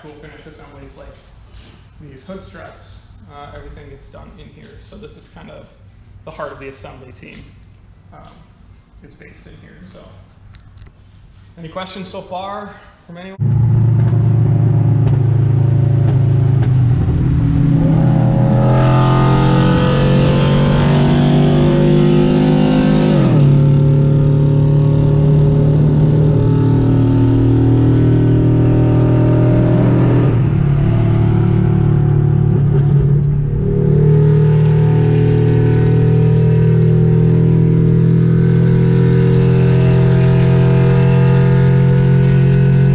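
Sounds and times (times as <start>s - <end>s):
car engine revving: 13.4s - 42.9s.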